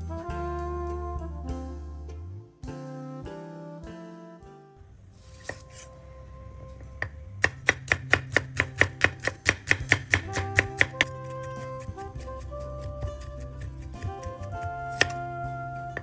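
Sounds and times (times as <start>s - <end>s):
background music: 0.0s - 16.0s
knife chopping on cutting board: 5.1s - 16.0s.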